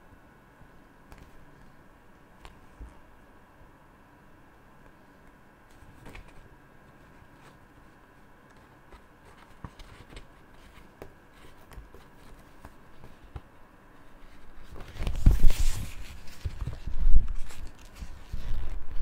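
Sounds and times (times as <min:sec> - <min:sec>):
paper rustling: 0:05.7 - 0:19.0.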